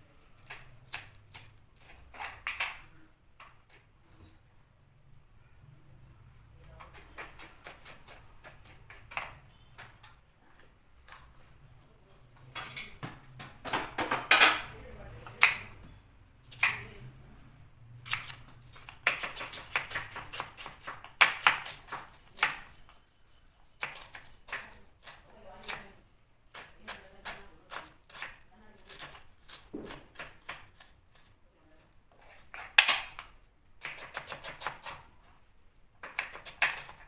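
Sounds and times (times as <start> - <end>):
dishes and utensils clattering: 12.4 - 14.8.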